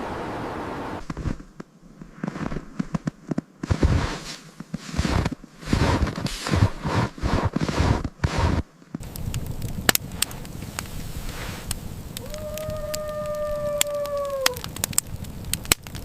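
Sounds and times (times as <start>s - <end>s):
steady rushing noise: 0.0s - 12.3s
sharp crackles and crunching: 1.0s - 16.0s.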